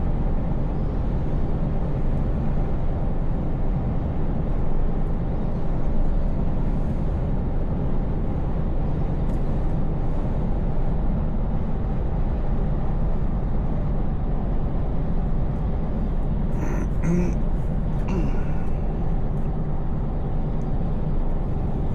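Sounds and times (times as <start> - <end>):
road noise: 0.2 - 21.9
truck engine drone: 12.8 - 21.9.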